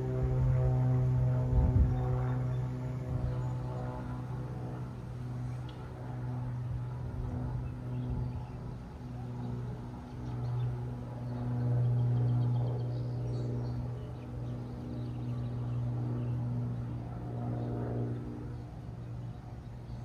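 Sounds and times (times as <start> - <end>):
low engine hum: 0.0 - 8.8.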